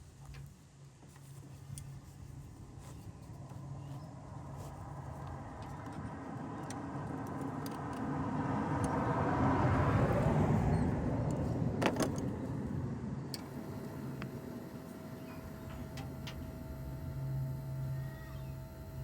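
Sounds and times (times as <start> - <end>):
motor vehicle passing by: 3.5 - 13.3.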